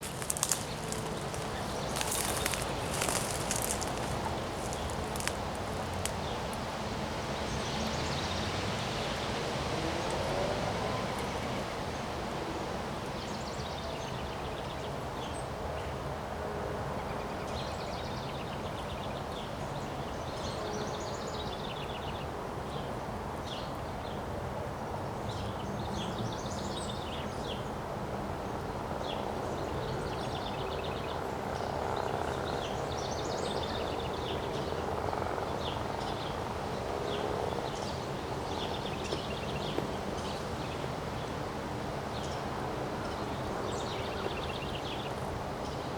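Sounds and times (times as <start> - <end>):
birds chirping and trilling: 0.0 - 6.1
wind blowing: 0.0 - 6.8.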